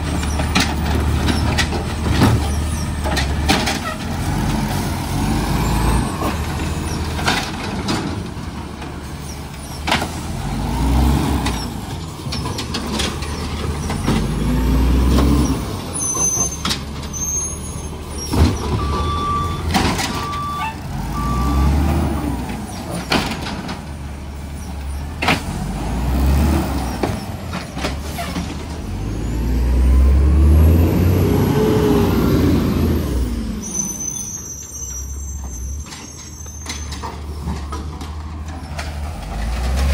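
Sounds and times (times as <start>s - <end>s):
clanks and knocks: 0.0s - 4.2s
garbage truck engine revving: 0.0s - 8.8s, 9.6s - 34.0s
short beeps: 18.8s - 21.8s.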